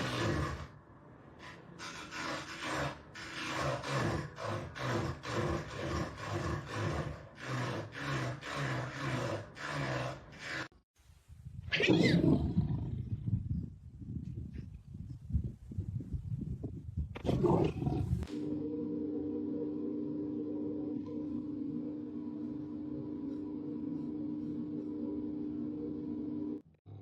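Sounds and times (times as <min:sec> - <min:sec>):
animal making low calls: 0:01.8 - 0:10.7.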